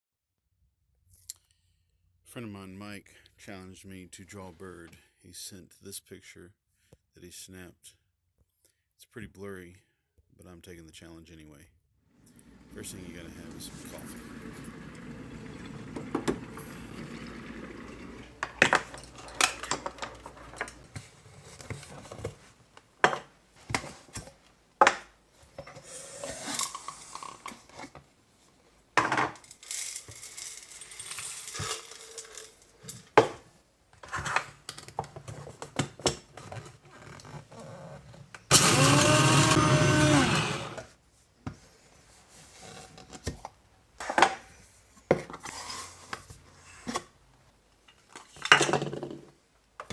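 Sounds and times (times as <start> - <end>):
kitchen appliance motor: 12.2 - 21.0, 38.5 - 40.9.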